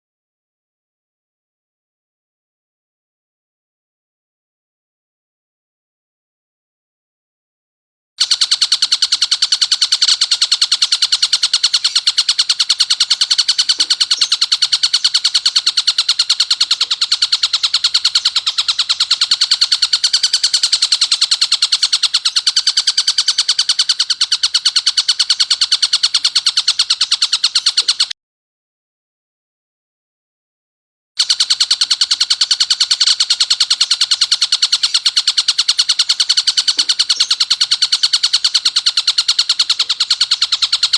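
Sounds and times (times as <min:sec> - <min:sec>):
kingfisher rattling call: 0:08.2 - 0:28.1, 0:31.2 - 0:40.9.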